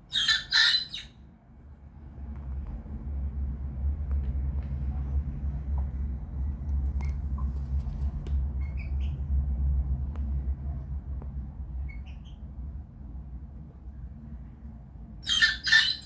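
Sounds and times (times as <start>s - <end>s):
steady low rumble: 0.0s - 16.0s
young cockerel squawky peeps: 0.1s - 1.1s, 15.2s - 16.0s.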